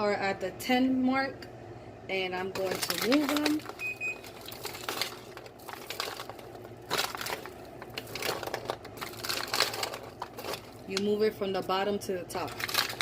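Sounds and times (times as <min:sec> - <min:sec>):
popcorn stirred on baking sheet: 0:02.6 - 0:03.8, 0:04.4 - 0:11.2, 0:12.3 - 0:13.0.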